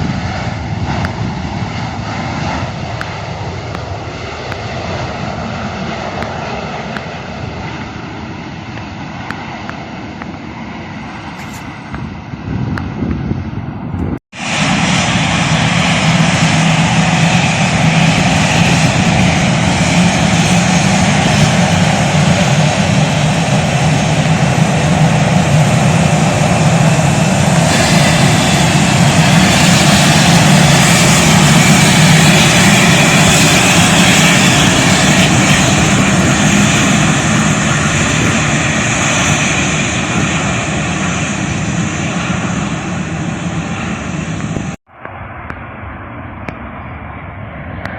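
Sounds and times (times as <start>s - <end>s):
airliner engines running: 0.0s - 47.9s.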